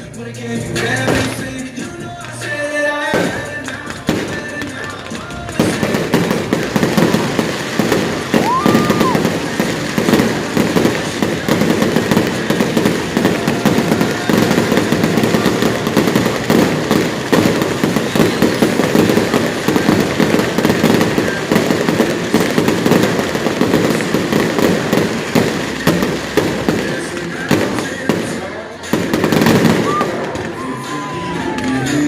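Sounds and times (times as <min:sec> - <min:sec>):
fireworks bangs and crackles: 0:00.0 - 0:32.0.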